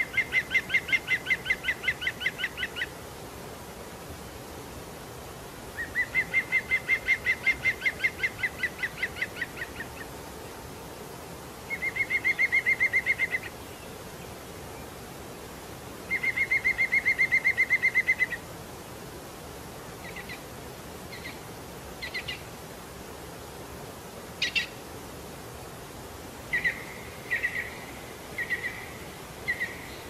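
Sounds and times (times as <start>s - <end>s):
steady hiss: 0.0s - 30.0s
bird trilling and calling: 26.5s - 30.0s.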